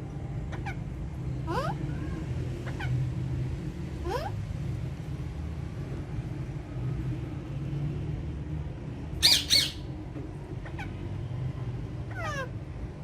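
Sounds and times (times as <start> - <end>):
parakeet chirps: 9.2 - 9.9
parakeets screeching: 9.2 - 9.9, 12.1 - 12.6.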